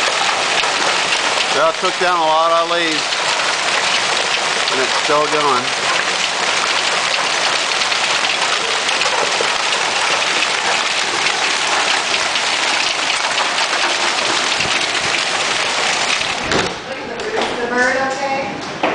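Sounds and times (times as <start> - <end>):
hailstones pelting down: 0.0 - 16.8.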